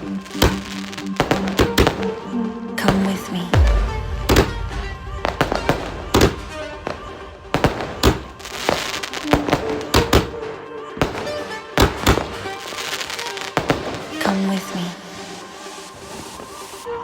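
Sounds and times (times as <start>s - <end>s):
firework bangs: 3.6s - 10.3s.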